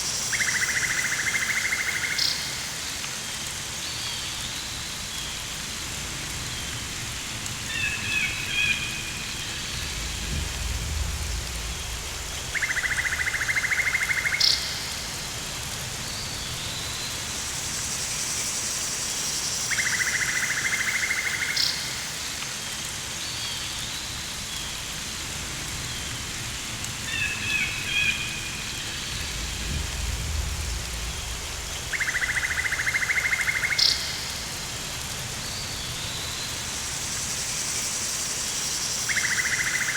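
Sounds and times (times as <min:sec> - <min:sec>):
steady rain hiss: 0:00.0 - 0:39.9
low rumbles: 0:09.0 - 0:13.6, 0:28.3 - 0:33.0.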